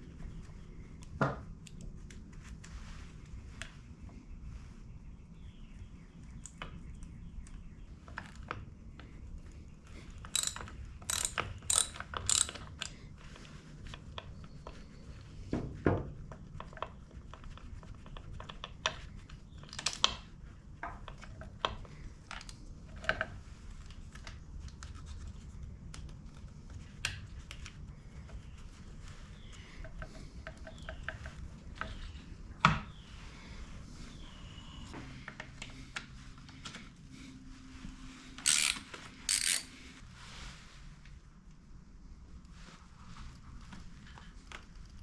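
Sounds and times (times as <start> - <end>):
ratchet clicking: 10.3 - 12.9, 38.4 - 39.7
metallic tool clicks and clinks: 10.4 - 12.6, 38.4 - 39.7.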